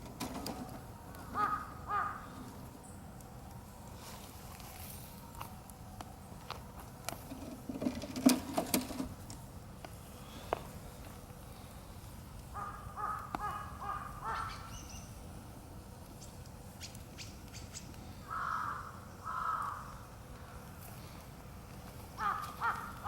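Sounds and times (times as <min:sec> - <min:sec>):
campfire crackling: 0:00.0 - 0:14.4, 0:15.0 - 0:23.0
crow cawing: 0:01.2 - 0:02.4, 0:12.6 - 0:14.7, 0:18.2 - 0:20.0, 0:22.2 - 0:23.0.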